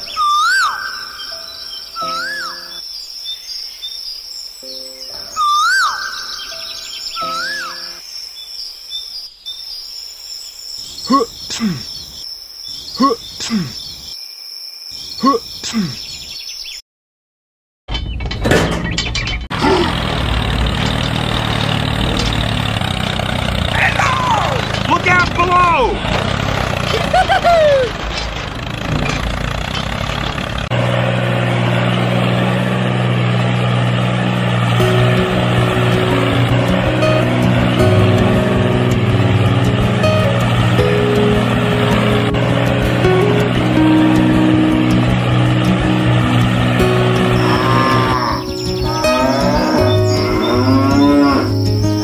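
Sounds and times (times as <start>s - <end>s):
cricket chirring: 0.4s - 16.2s
tractor engine running: 17.9s - 52.0s.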